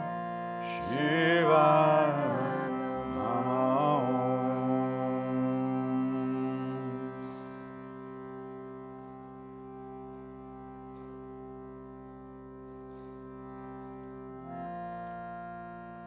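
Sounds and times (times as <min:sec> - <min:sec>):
person singing: 0:00.0 - 0:07.6
harmonium chord: 0:00.0 - 0:16.0.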